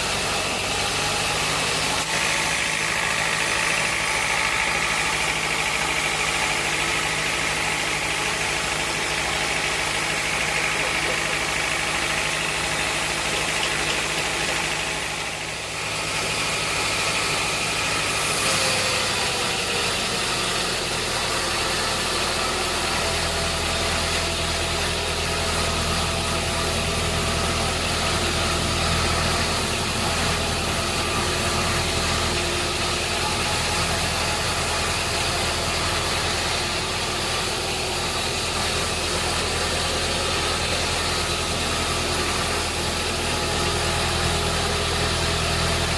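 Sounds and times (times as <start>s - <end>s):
sawmill engine hum: 0.0s - 45.9s.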